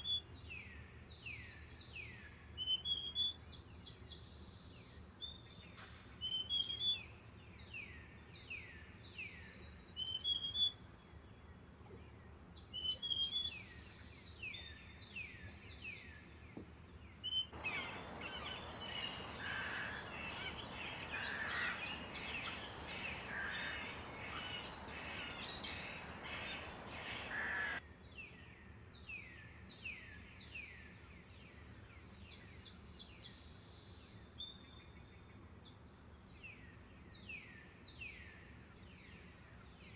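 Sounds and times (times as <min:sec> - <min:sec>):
dense chorus of birds: 0:17.6 - 0:27.8
rushing hiss: 0:17.6 - 0:27.8
songbirds singing: 0:17.6 - 0:27.8.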